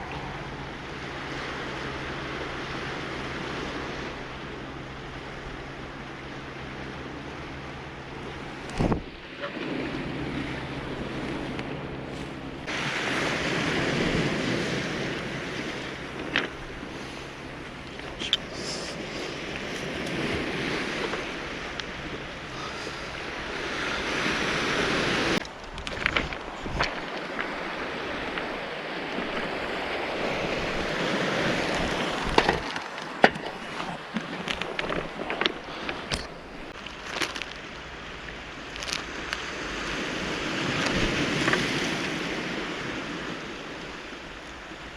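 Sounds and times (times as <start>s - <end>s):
waves washing on cobble beach: 0.0s - 44.9s
hissing rush of surf: 9.6s - 25.4s.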